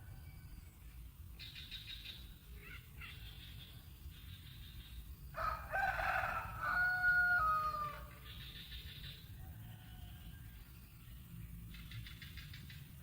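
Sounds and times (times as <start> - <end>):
rooster crowing: 5.4 - 8.1, 9.4 - 10.6.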